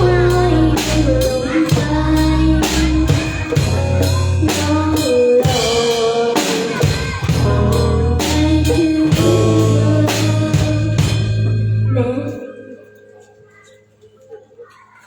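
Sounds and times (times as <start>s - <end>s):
drum beat: 0.0s - 12.0s
live band playing: 0.0s - 12.2s.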